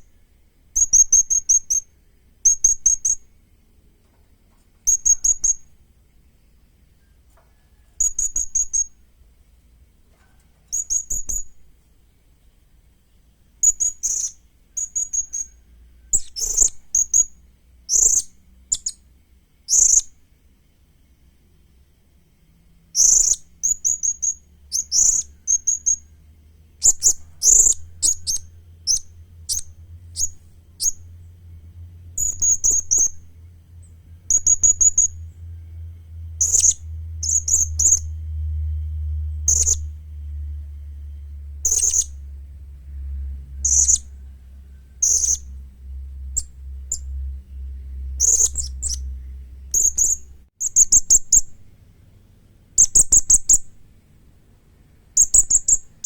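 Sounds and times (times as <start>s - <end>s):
low steady hum: 0.0s - 56.0s
parrot high-pitched chirps: 48.2s - 49.1s, 49.7s - 51.5s.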